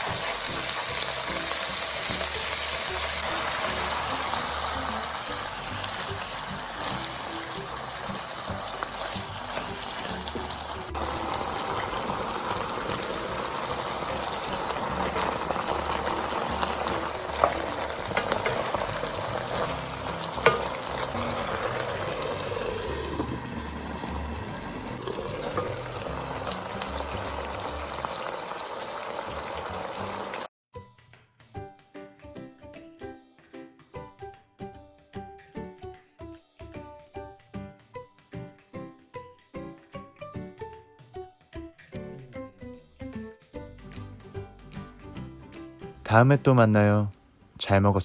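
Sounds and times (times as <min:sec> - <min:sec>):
food sizzling in a pan: 0:00.0 - 0:30.5
light music: 0:00.0 - 0:48.0
utensil clicking against pan: 0:12.8 - 0:21.9.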